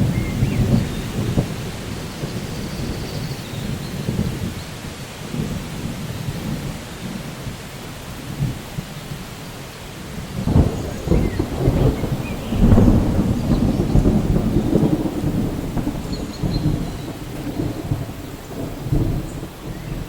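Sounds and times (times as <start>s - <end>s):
rolling thunder rumble: 0.0s - 4.6s, 10.0s - 20.0s
steady rain: 0.0s - 20.0s.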